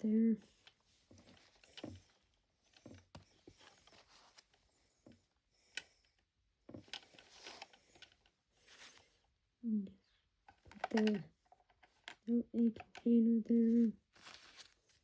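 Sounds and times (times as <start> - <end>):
soft rustles: 0.4 - 5.3, 6.7 - 9.4, 13.6 - 15.0
plastic toy pieces clicking: 10.5 - 13.1.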